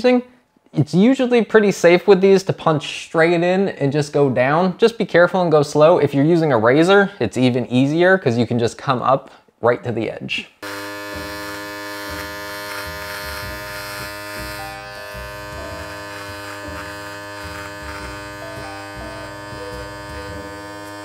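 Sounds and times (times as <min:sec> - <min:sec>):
electric trimmer buzzing: 0:10.6 - 0:21.0.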